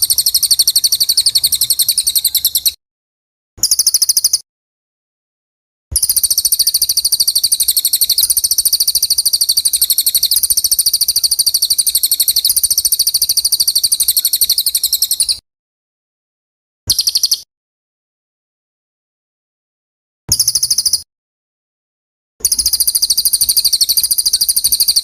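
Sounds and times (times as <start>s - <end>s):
songbird chirping rapidly: 0.0s - 2.8s, 3.6s - 4.4s, 6.0s - 15.4s, 16.9s - 17.5s, 20.3s - 21.0s, 22.4s - 25.0s.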